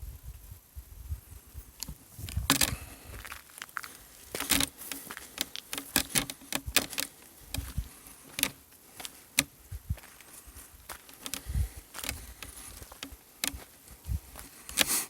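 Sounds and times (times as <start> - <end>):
sharp clicks and crackles: 1.8 - 9.5, 11.0 - 13.7, 14.6 - 15.0.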